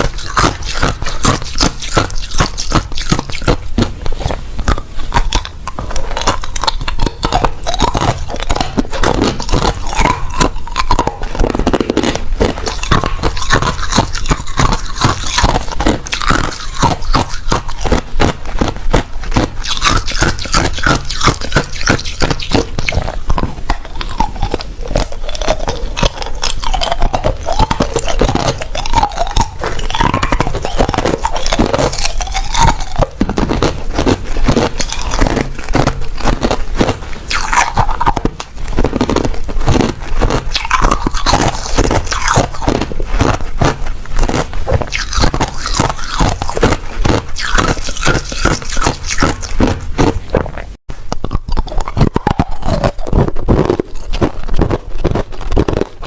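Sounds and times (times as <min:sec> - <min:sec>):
person chewing ice: 0:00.0 - 0:56.0.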